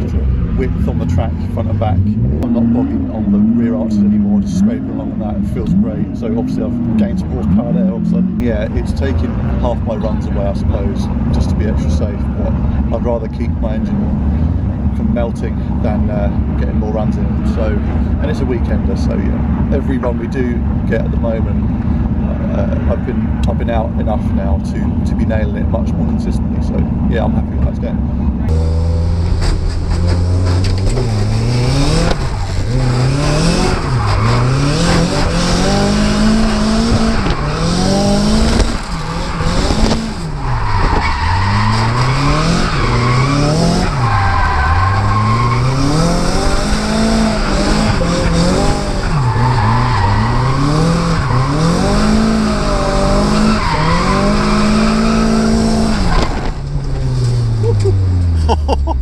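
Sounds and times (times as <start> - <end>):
car engine revving: 0.0 - 59.0
tyres squealing: 28.6 - 58.1.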